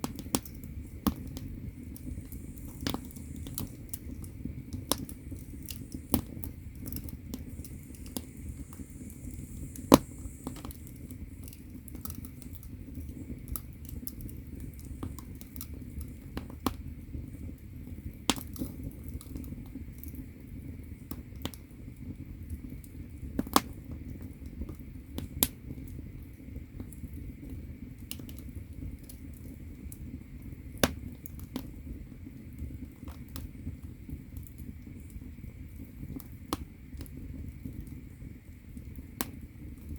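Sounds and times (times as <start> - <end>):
firewood crackling and popping: 0.0 - 39.9
low rumble of fire: 0.0 - 39.9.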